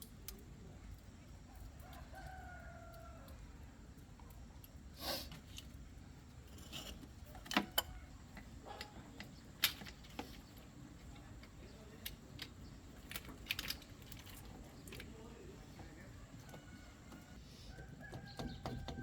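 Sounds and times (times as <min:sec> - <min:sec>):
hand tools tapping on metal: 0:06.5 - 0:19.0.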